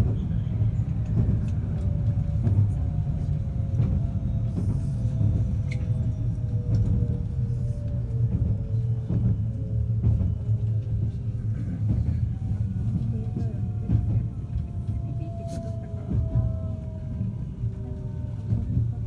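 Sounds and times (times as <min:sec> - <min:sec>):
electric train rumbling on rails: 0:00.0 - 0:19.0.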